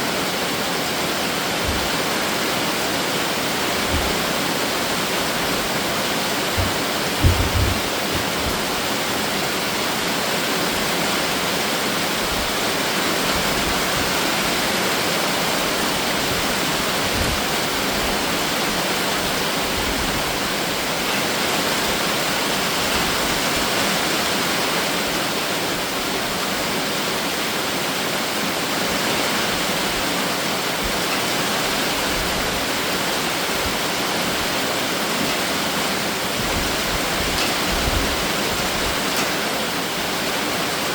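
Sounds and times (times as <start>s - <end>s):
heavy rain hiss: 0.0s - 40.9s
dull low thumps: 5.3s - 8.9s.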